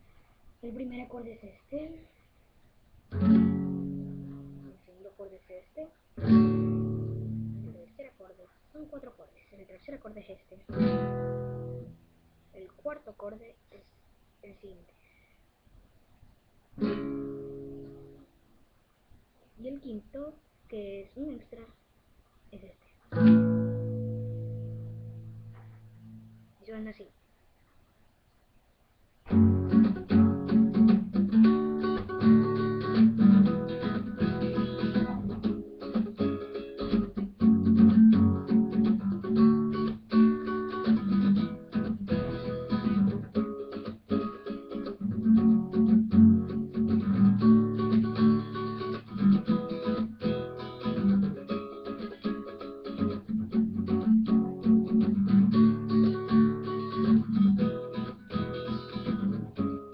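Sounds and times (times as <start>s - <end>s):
acoustic guitar strumming: 3.1s - 4.7s, 6.2s - 7.8s, 10.7s - 12.0s, 16.8s - 18.2s, 23.1s - 26.4s, 29.3s - 59.9s.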